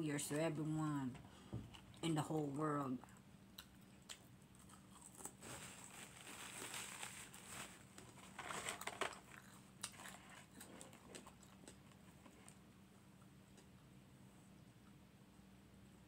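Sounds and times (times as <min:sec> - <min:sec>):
chewing fries: 0:03.0 - 0:13.9
fingers rustling in cardboard carton: 0:05.4 - 0:09.2.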